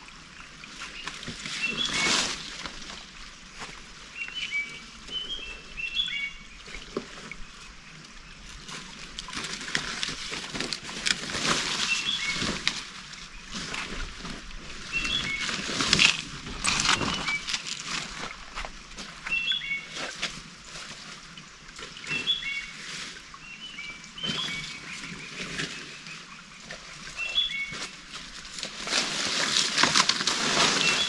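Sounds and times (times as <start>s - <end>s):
birds chirping: 0.3s - 2.2s, 3.5s - 8.5s, 11.8s - 12.7s, 13.3s - 20.1s, 22.0s - 22.8s, 23.4s - 28.1s, 30.7s - 31.0s
rustling and clicking: 15.2s - 19.1s, 27.7s - 31.0s.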